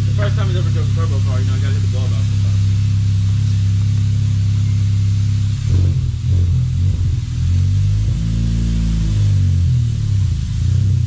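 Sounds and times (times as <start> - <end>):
car engine idling: 0.0 - 11.0
engine throttle blips: 0.0 - 11.0.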